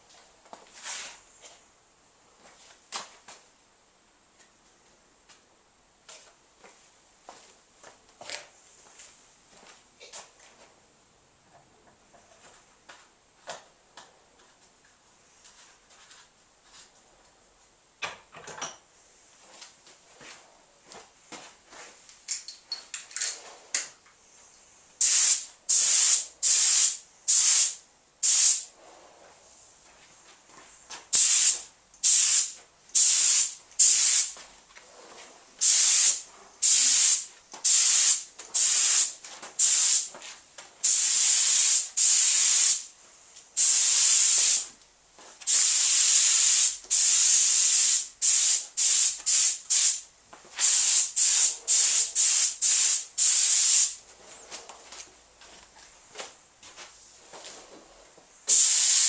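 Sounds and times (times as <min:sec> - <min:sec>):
paint spray gun hissing: 0:25.0 - 0:28.7, 0:31.1 - 0:34.4, 0:35.6 - 0:40.1, 0:40.8 - 0:42.9, 0:43.6 - 0:44.7, 0:45.5 - 0:50.0, 0:50.6 - 0:54.0, 0:58.5 - 0:59.0.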